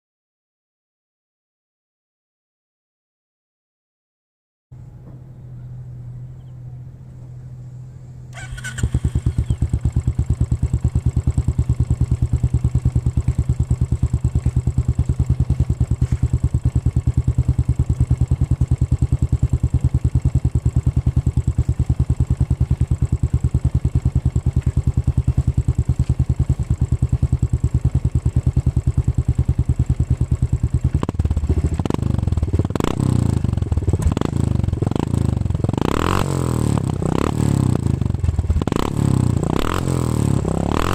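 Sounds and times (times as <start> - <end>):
motorcycle engine idling and revving: 4.8 - 40.9.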